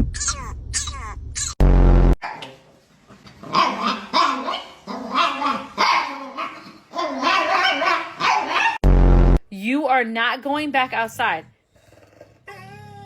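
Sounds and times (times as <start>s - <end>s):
dog grumbling howls: 12.1s - 13.0s.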